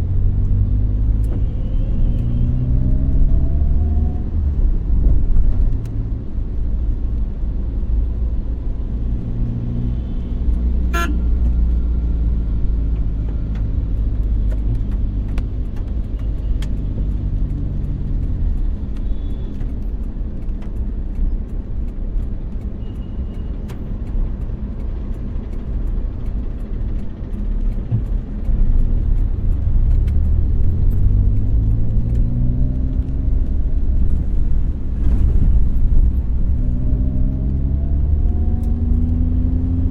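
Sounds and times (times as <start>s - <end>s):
car engine and road rumble: 0.0s - 39.9s
car horn toots: 10.9s - 11.3s.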